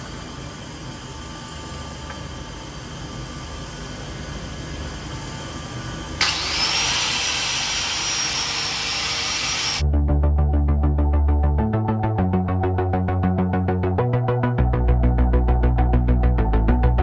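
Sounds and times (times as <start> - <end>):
angle grinder whining: 6.2 - 9.8.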